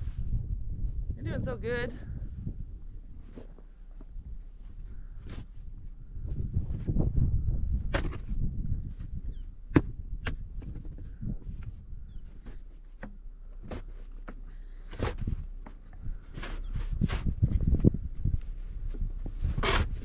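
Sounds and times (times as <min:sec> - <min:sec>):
snow shovel scraping snow: 0:19.3 - 0:20.0.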